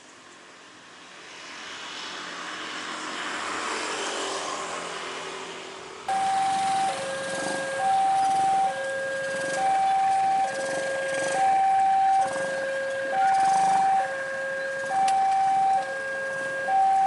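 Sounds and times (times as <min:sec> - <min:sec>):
two-tone warning signal: 0:06.1 - 0:17.0.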